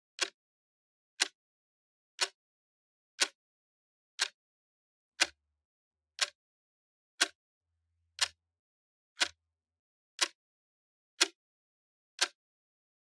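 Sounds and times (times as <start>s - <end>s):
clock ticking: 0.2s - 0.4s, 8.2s - 8.4s.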